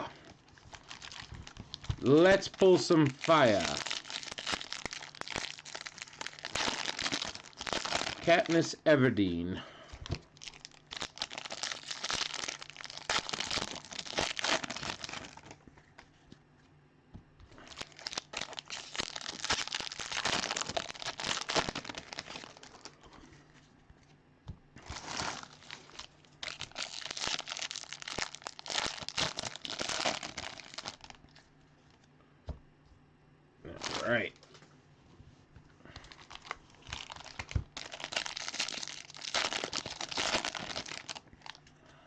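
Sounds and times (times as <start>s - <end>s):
foil wrappers tearing and crinkling: 0.5s - 8.6s, 10.0s - 15.6s, 17.6s - 23.0s, 24.8s - 31.3s, 36.0s - 41.6s.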